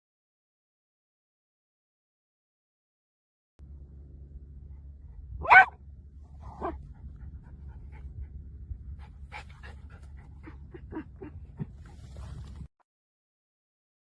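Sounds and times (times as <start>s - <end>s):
steady low hum: 3.6s - 12.7s
dog panting: 6.4s - 12.4s.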